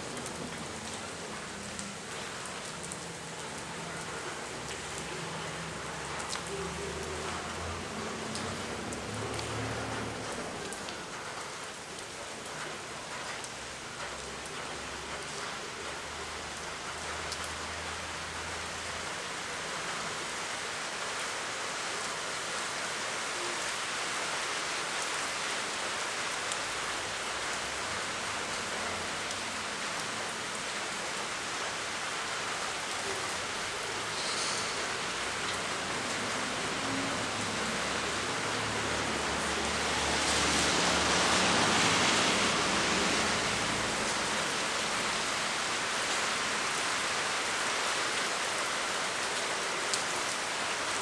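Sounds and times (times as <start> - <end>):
faint raindrop ticks: 0.0 - 20.4, 26.3 - 31.2, 49.2 - 50.4
steady rain falling: 0.0 - 51.0.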